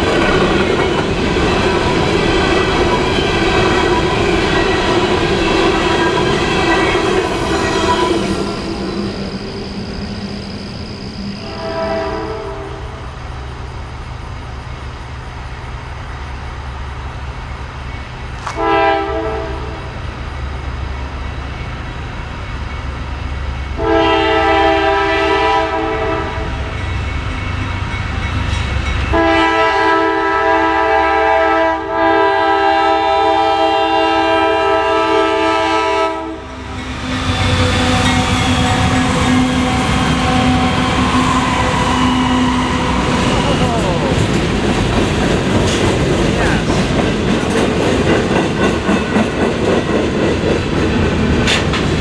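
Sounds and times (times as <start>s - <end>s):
locomotive engines rumbling: 0.0s - 31.1s, 33.2s - 52.0s
locomotive horn blasts: 5.9s - 8.8s, 11.4s - 13.0s, 18.5s - 19.9s, 23.8s - 26.7s, 29.1s - 36.6s.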